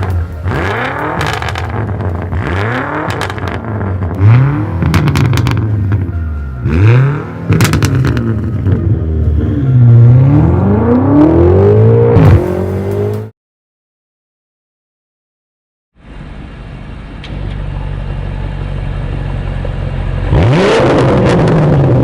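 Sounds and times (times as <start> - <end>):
exhaust pops: 0.0 - 6.2, 7.5 - 8.9
car engine revving: 0.0 - 13.3, 17.6 - 22.0.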